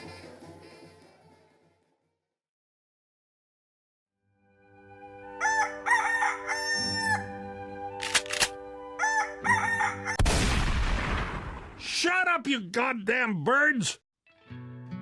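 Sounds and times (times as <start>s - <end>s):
rooster crowing: 5.2s - 7.4s, 9.0s - 10.2s
sharp clicks: 8.0s - 8.6s.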